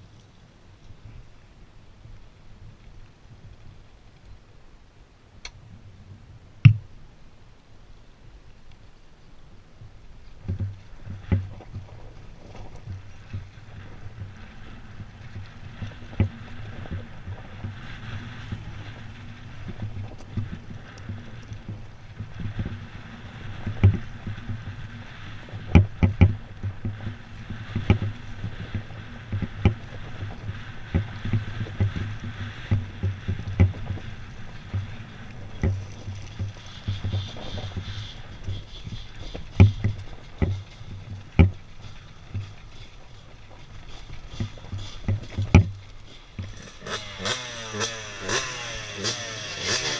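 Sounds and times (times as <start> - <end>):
dirt bike engine running: 10.4 - 49.9
sharp knocks and thumps: 39.3 - 40.7, 41.3 - 41.6.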